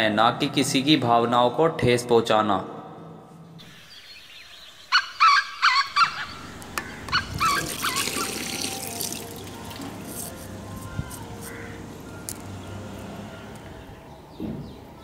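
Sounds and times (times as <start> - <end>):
harsh bird calls: 3.6 - 15.0
water running from tap: 7.4 - 10.0.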